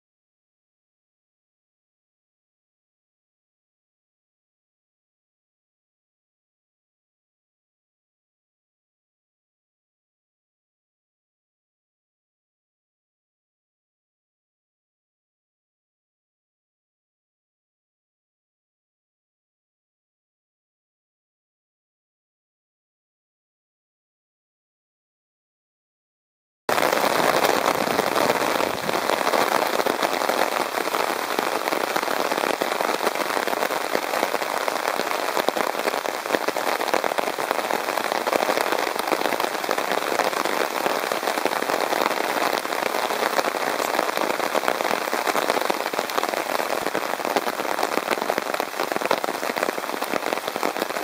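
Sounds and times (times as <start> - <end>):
heavy rain falling: 26.7 - 51.0.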